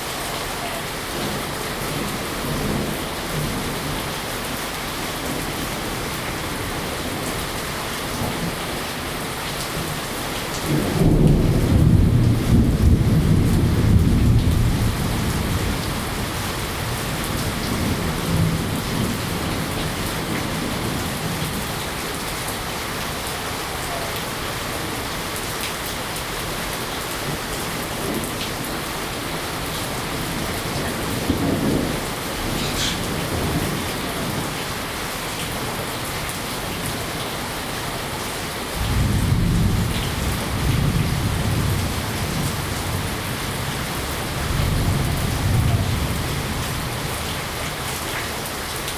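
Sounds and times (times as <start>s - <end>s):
rain hissing: 0.0s - 48.9s
rolling thunder: 10.6s - 21.8s, 30.2s - 34.6s, 38.8s - 47.3s.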